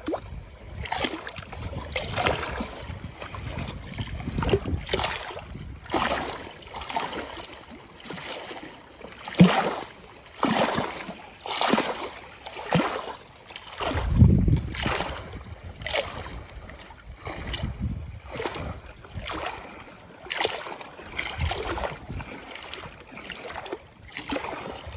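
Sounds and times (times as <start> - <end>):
lake waves lapping: 0.0 - 24.9.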